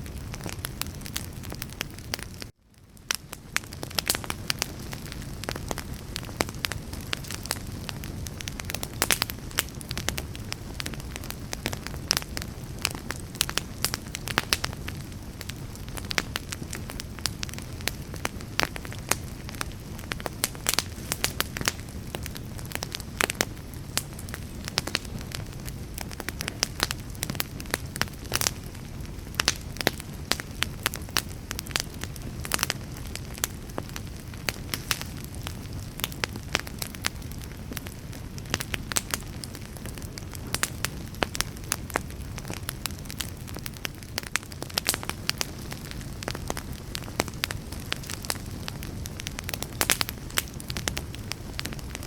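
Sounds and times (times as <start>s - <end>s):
low rush of flame: 0.0s - 52.0s
wood fire crackling and popping: 0.0s - 52.0s.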